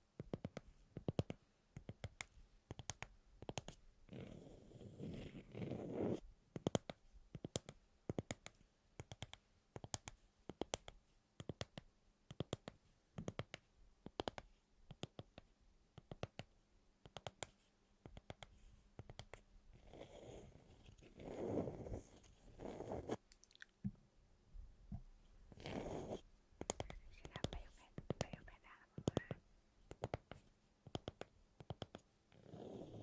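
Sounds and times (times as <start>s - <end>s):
quiet clicking and tapping: 0.0s - 3.8s, 6.5s - 19.5s, 26.6s - 32.4s.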